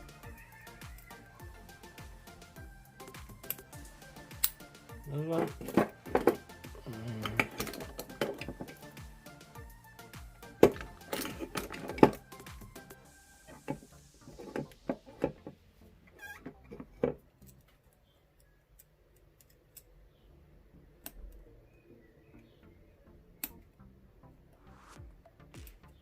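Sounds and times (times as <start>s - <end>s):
lock pick clicking in padlock: 3.0s - 4.6s.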